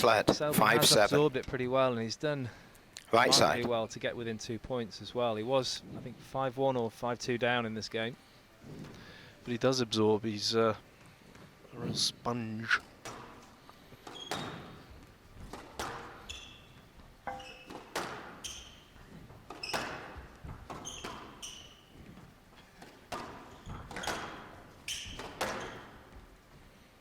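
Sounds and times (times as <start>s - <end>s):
shoe squeaks on court: 14.1s - 14.9s, 16.1s - 22.2s, 23.5s - 26.0s
squash ball hits echoing: 15.4s - 16.2s, 17.3s - 18.5s, 22.8s - 26.0s.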